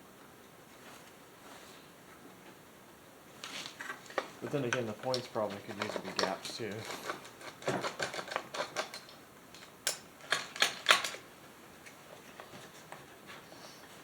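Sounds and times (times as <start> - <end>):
metal parts clicking and clacking: 5.1 - 11.2.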